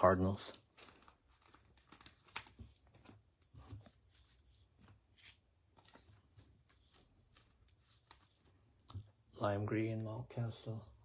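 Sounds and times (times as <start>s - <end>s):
trading cards clicking and rustling: 0.5s - 3.2s.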